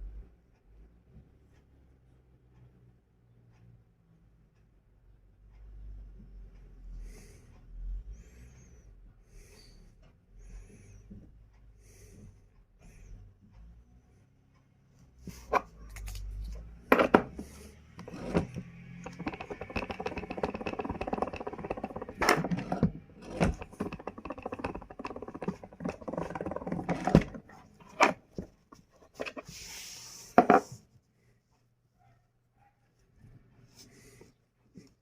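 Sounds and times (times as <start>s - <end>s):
sharp knocks and clicks: 16.9s - 29.4s.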